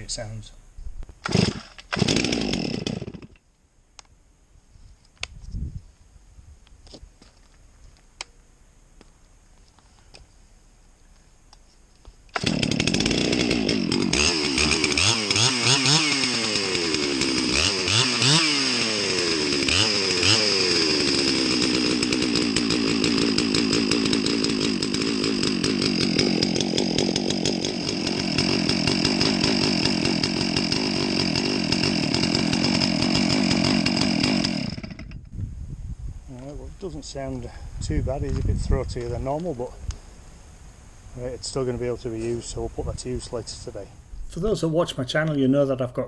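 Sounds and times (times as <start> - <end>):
chainsaw revving: 1.2 - 3.4, 12.3 - 35.3.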